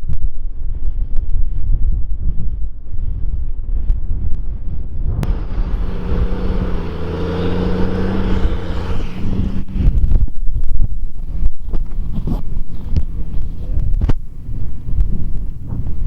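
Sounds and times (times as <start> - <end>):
wind buffeting microphone: 0.0 - 16.0
tractor diesel engine passing: 5.2 - 10.0.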